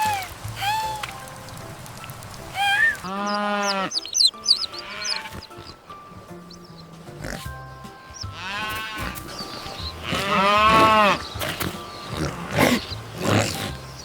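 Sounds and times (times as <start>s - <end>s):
light background music: 0.0s - 14.0s
wavering animal calls: 2.6s - 5.8s, 8.2s - 14.0s.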